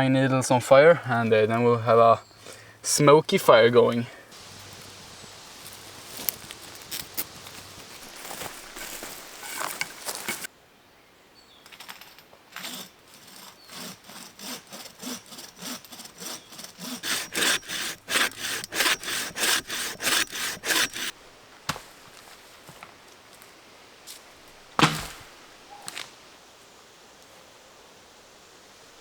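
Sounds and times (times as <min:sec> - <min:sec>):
rustling: 0:03.9 - 0:10.5, 0:11.6 - 0:26.2
hand saw cutting wood: 0:05.6 - 0:10.5, 0:12.5 - 0:21.2.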